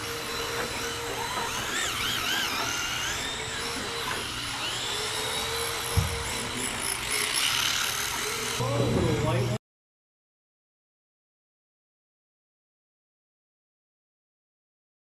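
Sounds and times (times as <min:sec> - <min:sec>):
electric motors whining: 0:00.0 - 0:09.6
thump: 0:05.9 - 0:06.3.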